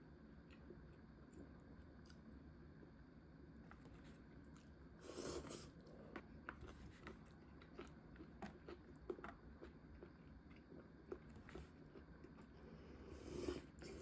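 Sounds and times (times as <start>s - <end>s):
person chewing: 4.6s - 12.6s.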